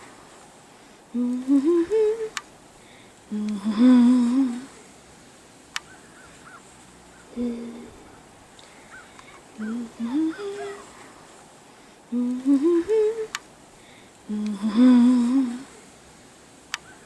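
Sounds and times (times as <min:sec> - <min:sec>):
person humming a tune: 0:01.1 - 0:02.4, 0:03.3 - 0:04.8, 0:07.3 - 0:08.0, 0:09.6 - 0:10.9, 0:12.1 - 0:13.4, 0:14.3 - 0:15.8.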